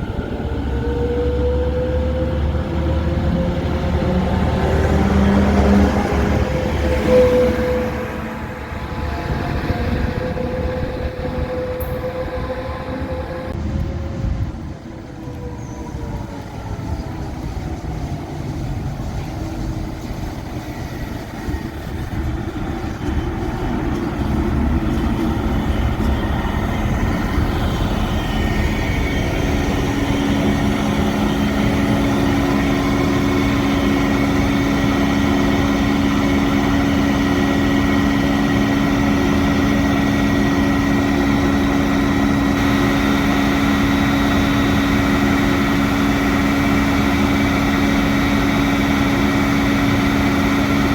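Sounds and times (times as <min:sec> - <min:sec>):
diesel locomotive engine droning: 0:00.0 - 0:50.9.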